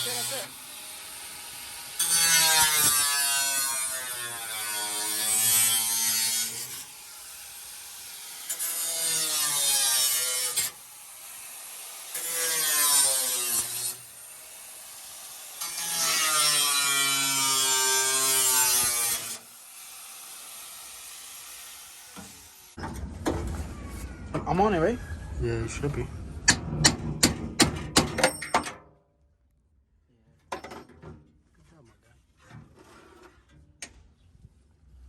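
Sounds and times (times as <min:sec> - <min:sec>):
power tool cutting sheet metal: 0:00.0 - 0:22.8.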